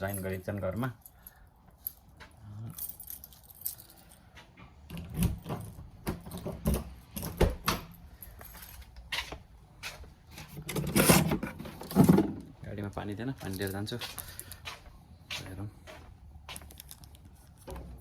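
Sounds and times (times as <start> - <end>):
keys jangling: 0.0 - 4.4, 5.0 - 9.0.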